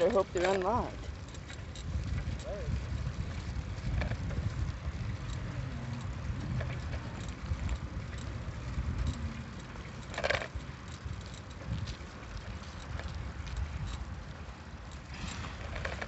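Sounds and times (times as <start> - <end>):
bike clicks and rattles: 0.0 - 16.0
wind rumbling on microphone: 0.0 - 16.0.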